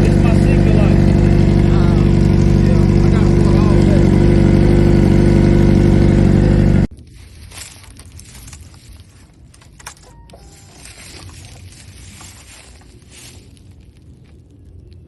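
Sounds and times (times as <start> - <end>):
motorcycle engine running: 0.0 - 6.9, 10.0 - 12.6.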